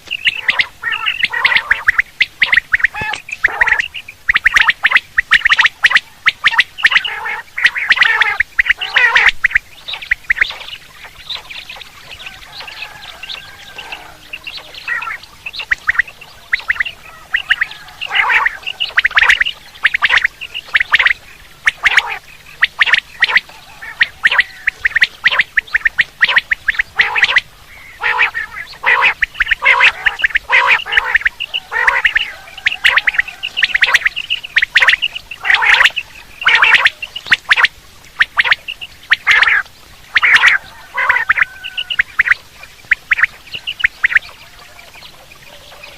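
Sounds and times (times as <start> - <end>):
quail calling: 0.0 - 45.9.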